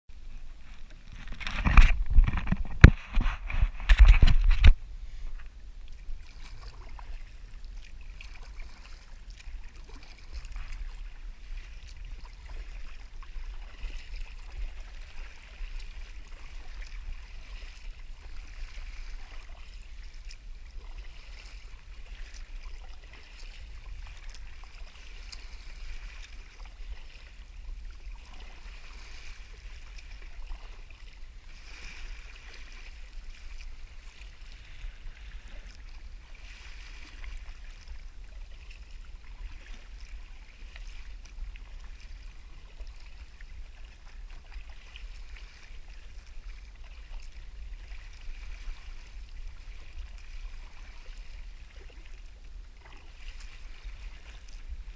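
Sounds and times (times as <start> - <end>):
small waves lapping on a hull: 0.1 - 54.9.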